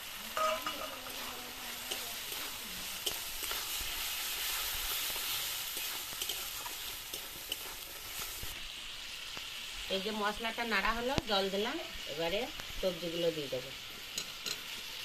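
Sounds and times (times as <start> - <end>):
spatula stirring and scraping: 0.0 - 8.6
food sizzling in a pan: 0.0 - 15.0.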